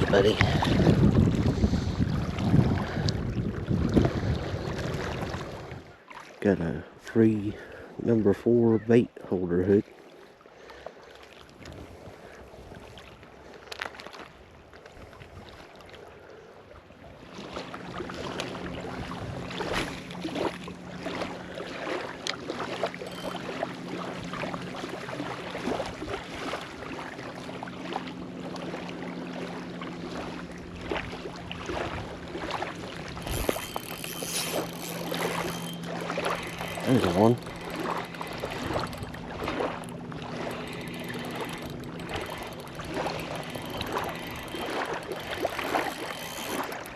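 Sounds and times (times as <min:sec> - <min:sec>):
wind noise: 0:00.0 - 0:05.8
motorboat engine humming: 0:00.0 - 0:13.7, 0:16.0 - 0:46.9
water noise: 0:00.0 - 0:46.9.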